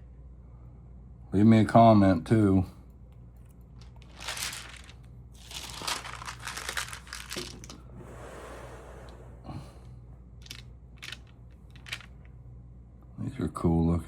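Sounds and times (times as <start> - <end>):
low steady hum: 0.0 - 14.0
album pages rustling: 3.8 - 7.8, 10.4 - 12.2
pages sliding: 4.0 - 8.2.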